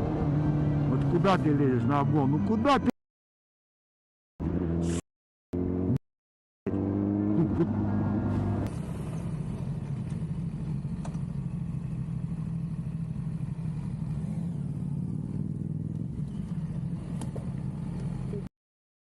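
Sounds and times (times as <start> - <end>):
road and wind noise: 0.0 - 2.9, 6.7 - 18.5
motorcycle engine cruising: 6.7 - 18.5.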